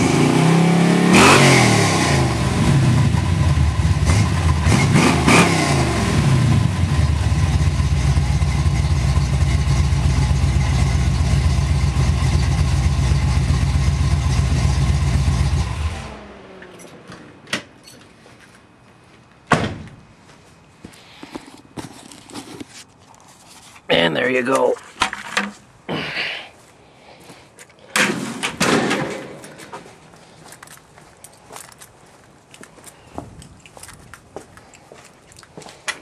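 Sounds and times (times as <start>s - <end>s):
car engine idling and revving: 0.0s - 17.5s.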